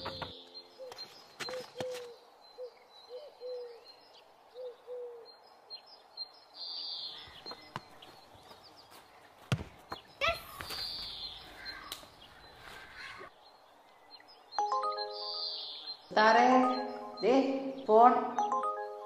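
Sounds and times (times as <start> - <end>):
birds calling: 0.0 - 18.1
high bird chirps: 14.6 - 17.9.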